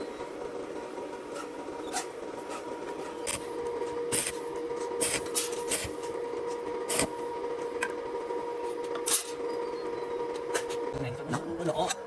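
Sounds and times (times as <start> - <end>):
steady hum: 3.2 - 9.4.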